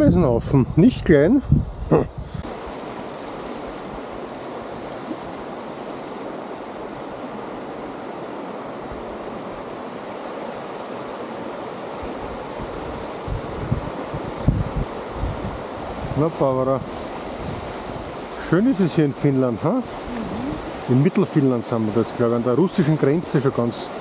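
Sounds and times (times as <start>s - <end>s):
wind buffeting microphone: 0.0s - 10.2s, 11.4s - 18.7s
river rapids rushing: 15.0s - 24.0s.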